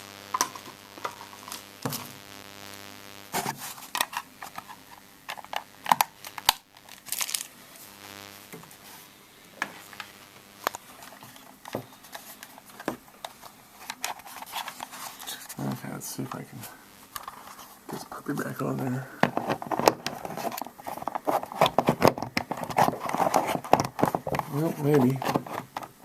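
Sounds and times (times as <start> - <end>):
faint steady hum: 0.0 - 26.0
crinkling: 3.4 - 9.0, 9.6 - 16.4, 17.0 - 26.0
plastic clicks and knocks: 19.2 - 26.0.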